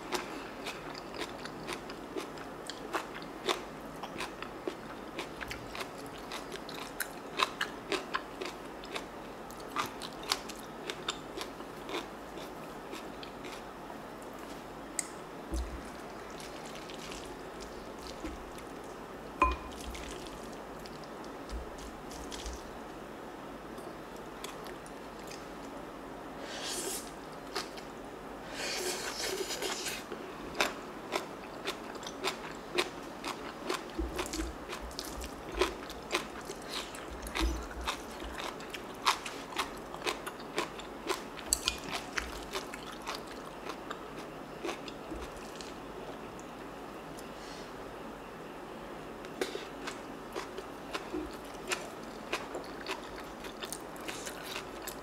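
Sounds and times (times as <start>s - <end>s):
chewing: 0.1s - 13.6s, 14.4s - 22.7s, 30.5s - 46.5s, 49.3s - 55.0s
crisp crunching of food: 15.5s - 19.0s, 19.6s - 22.8s, 30.5s - 46.3s, 49.4s - 55.0s.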